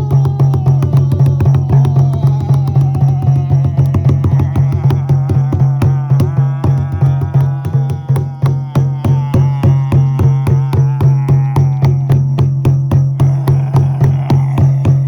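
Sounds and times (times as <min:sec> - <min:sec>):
wavering melody: 0:00.0 - 0:11.2
frame drum beating: 0:00.0 - 0:15.0.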